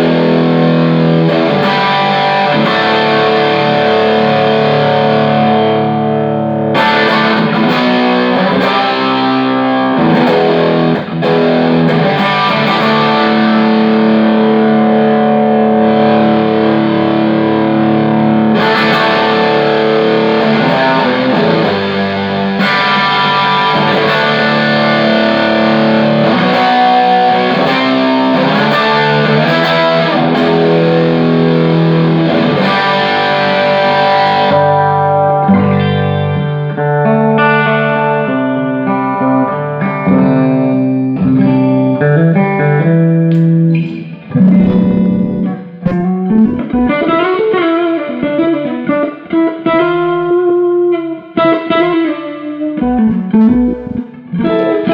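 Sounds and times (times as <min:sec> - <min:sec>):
distorted electric guitar: 0:00.0 - 0:54.9.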